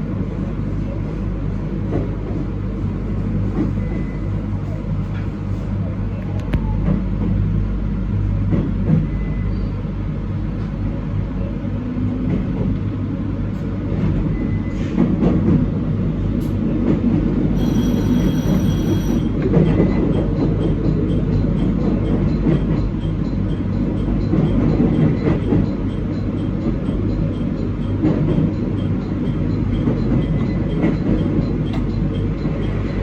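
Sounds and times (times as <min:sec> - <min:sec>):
train rumble and hum: 0:00.0 - 0:33.0
high ringing tone: 0:17.6 - 0:19.4.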